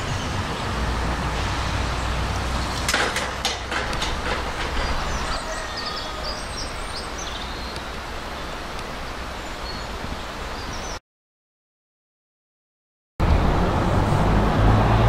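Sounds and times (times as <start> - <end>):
low train rumble: 0.0 - 10.9, 13.2 - 15.0
train wheels clicking over rail joints: 2.4 - 5.7
small birds chirping: 4.6 - 11.0.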